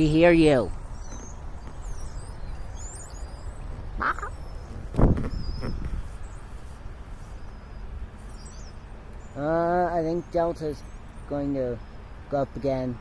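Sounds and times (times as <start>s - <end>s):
harsh bird call: 0.0s - 6.5s
birds chirping: 0.0s - 13.0s.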